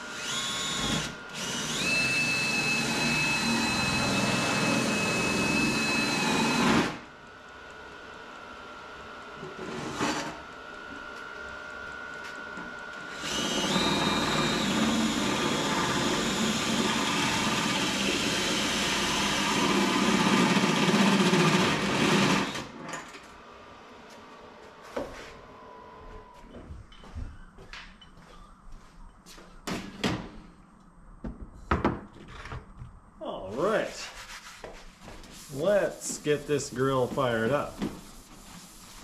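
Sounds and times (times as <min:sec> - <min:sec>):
power tool running: 0:00.0 - 0:07.1, 0:12.2 - 0:22.8.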